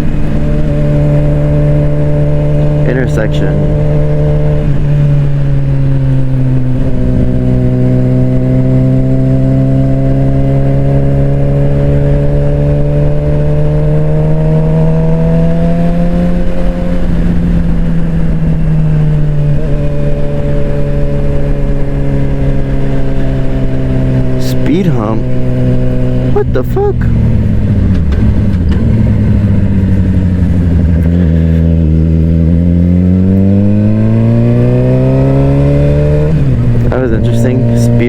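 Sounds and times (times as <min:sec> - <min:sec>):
motorcycle engine accelerating: 0:00.0 - 0:38.0.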